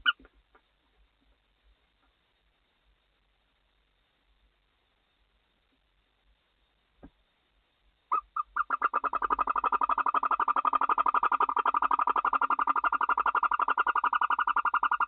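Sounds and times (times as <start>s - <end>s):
barn owl calling: 8.1s - 15.0s.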